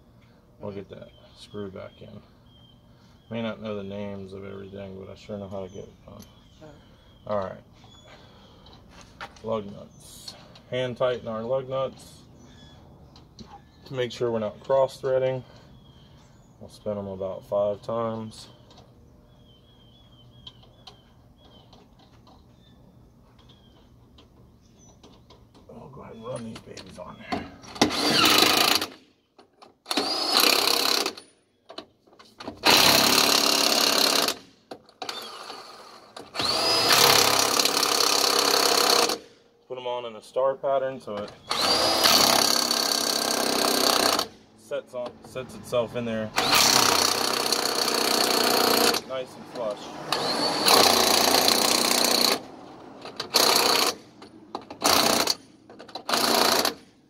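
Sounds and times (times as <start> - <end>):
cordless power tool whining: 27.2 - 29.0, 29.8 - 31.3, 32.5 - 39.3, 41.4 - 44.4, 46.4 - 54.0, 54.6 - 56.9
impact wrench bursts: 27.6 - 29.0, 29.8 - 31.3, 32.4 - 39.3, 41.4 - 44.4, 46.4 - 57.0.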